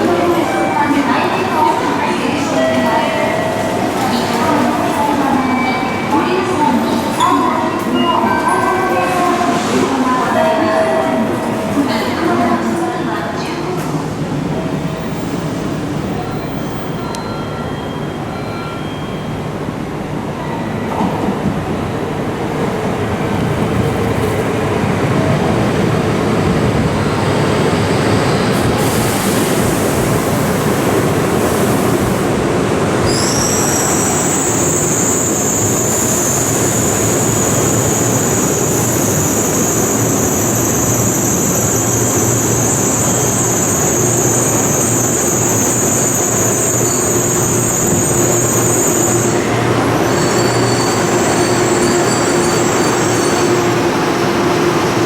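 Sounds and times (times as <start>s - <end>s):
train running noise: 0.0s - 55.0s
high whistle: 33.1s - 35.9s.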